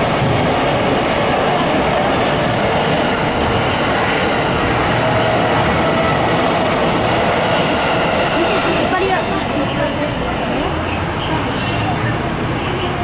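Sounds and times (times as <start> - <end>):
train wheels on rails: 0.0 - 13.0.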